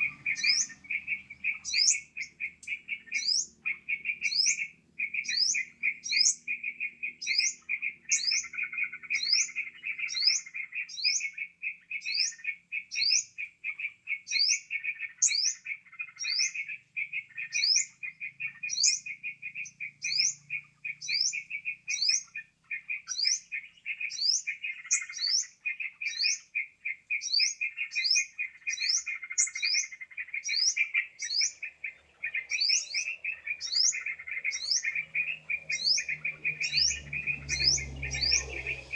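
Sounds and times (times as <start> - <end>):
bulbul calls chattering: 0.0 - 38.9.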